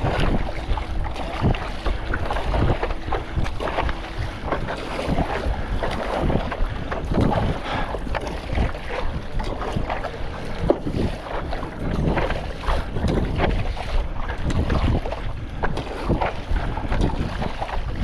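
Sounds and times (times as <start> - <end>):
water splashing against paddleboard: 0.0 - 18.0
wind buffeting microphone: 0.0 - 18.0.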